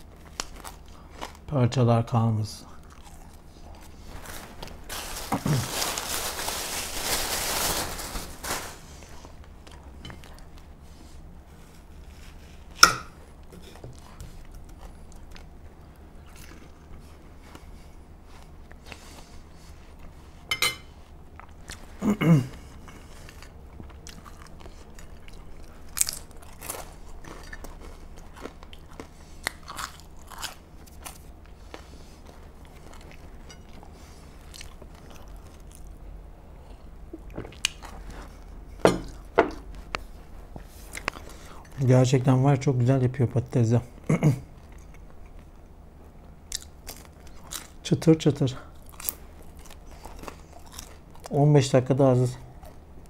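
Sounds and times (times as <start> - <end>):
crunching crispy fries: 2.7 - 9.8, 22.5 - 36.0, 46.5 - 52.8.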